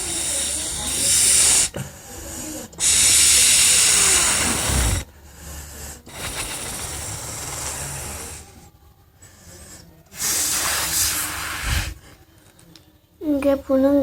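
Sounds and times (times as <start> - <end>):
person blowing into balloon: 0.0 - 1.8, 2.8 - 5.1, 6.1 - 8.6, 10.2 - 12.0
breathy hissing: 0.0 - 12.2.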